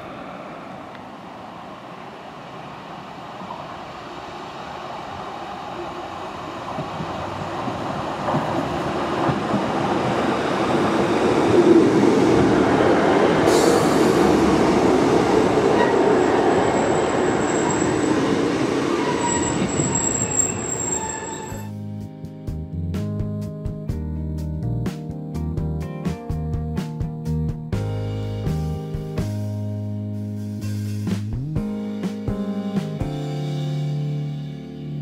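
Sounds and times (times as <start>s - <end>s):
train wheel and rail rumble: 0.0s - 21.7s
high wheel squeal: 15.6s - 21.7s.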